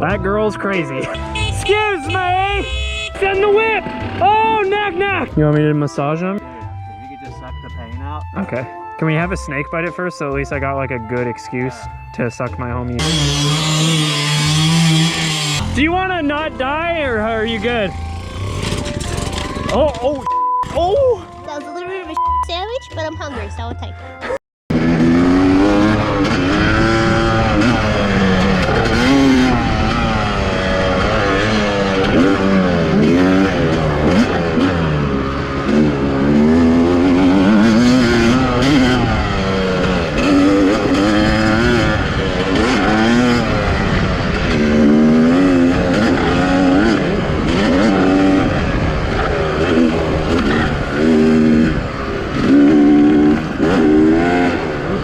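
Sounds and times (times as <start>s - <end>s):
dirt bike engine revving: 0.3s - 5.9s, 13.0s - 20.3s, 24.7s - 55.0s.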